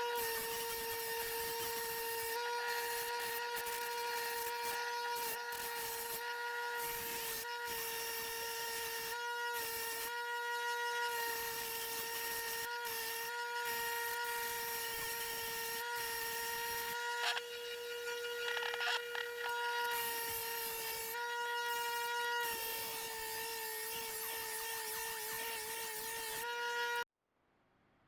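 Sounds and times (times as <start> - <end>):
bench buffer whine: 16.8 - 20.0.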